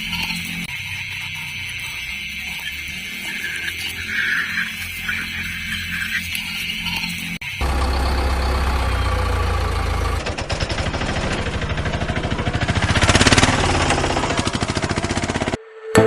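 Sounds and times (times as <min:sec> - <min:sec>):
vehicle engine humming: 0:06.9 - 0:16.0
engine rattling chug: 0:07.6 - 0:15.6.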